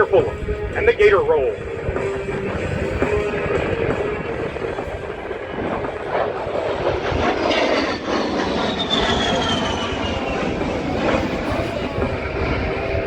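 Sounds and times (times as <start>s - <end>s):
high jet engine whine: 0.0s - 13.0s
jet flying past: 0.0s - 13.0s.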